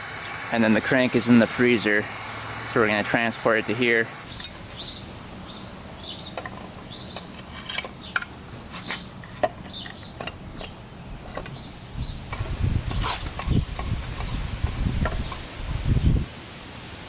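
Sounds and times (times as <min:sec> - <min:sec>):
small birds chirping: 0:04.2 - 0:16.3
low rustling and rumbling: 0:04.3 - 0:16.3
metal tools clinking and knocking: 0:06.3 - 0:11.6.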